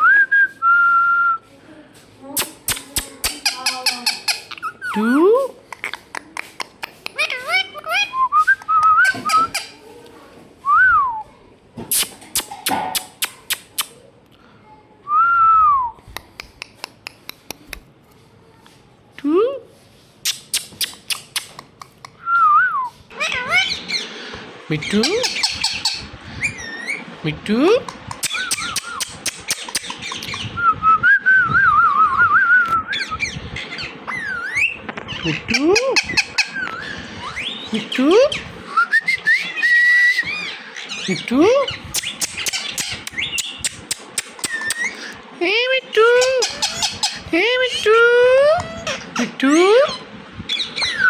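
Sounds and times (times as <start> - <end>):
parrot whistling: 28.2 - 43.7, 48.2 - 51.0.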